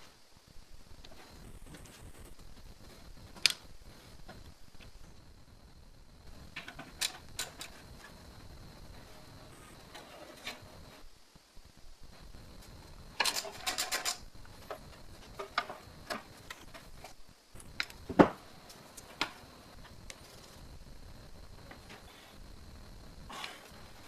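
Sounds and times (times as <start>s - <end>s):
rattling run of clicks: 13.2s - 14.2s
metal parts clicking and clinking: 13.2s - 14.3s.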